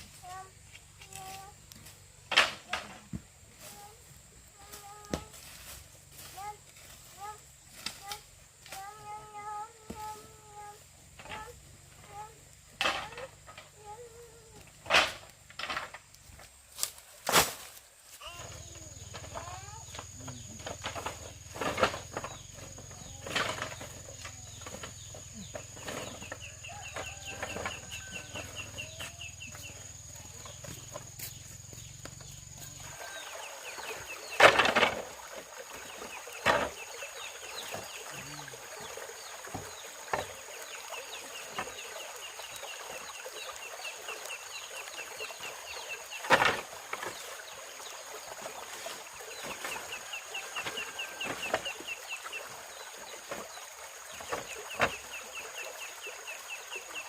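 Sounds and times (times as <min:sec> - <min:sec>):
chickens clucking: 0:18.2 - 0:47.3, 0:48.8 - 0:53.5.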